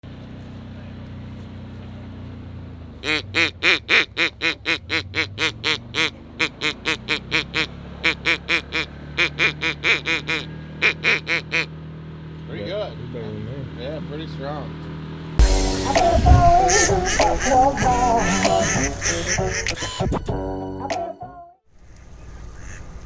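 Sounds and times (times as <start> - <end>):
duck call quacks: 3.0 - 11.7, 16.6 - 20.1.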